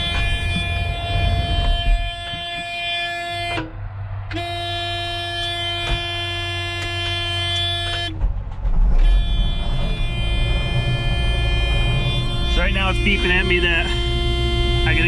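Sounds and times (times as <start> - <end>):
engine idling: 3.5 - 15.0
high-pitched warning alarm tone: 9.3 - 15.0.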